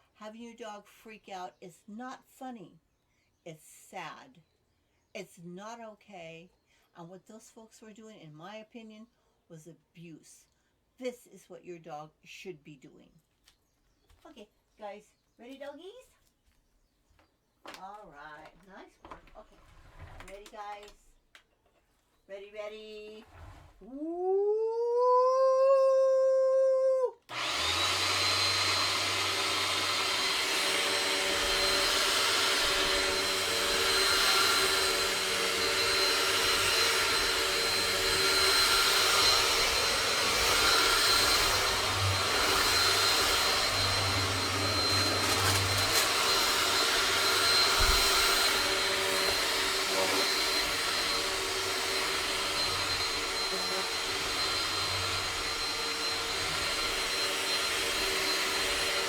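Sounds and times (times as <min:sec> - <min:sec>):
vacuum cleaner motor whining: 0:27.3 - 0:59.0.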